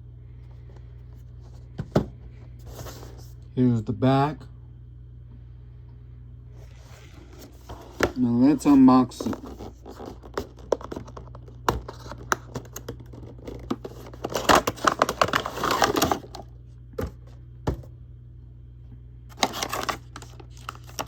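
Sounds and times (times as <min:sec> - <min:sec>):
packaging crinkling and tearing: 0:09.2 - 0:16.5, 0:19.3 - 0:21.0.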